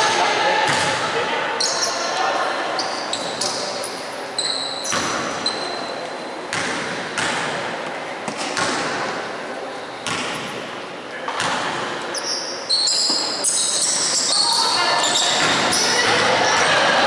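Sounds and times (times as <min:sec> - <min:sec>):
basketball thuds and bangs: 0:06.5 - 0:07.7, 0:08.3 - 0:09.2.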